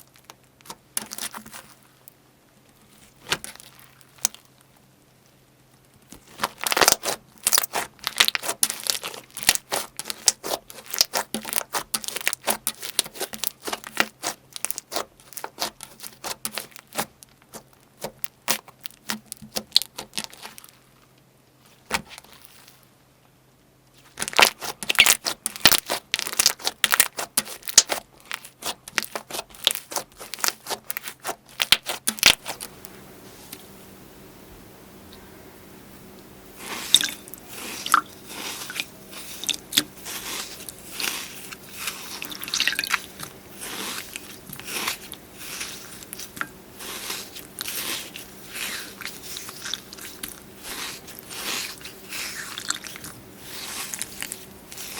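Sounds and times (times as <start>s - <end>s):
slime crackling and clicking: 3.3s - 4.5s, 6.0s - 20.7s, 24.1s - 32.7s.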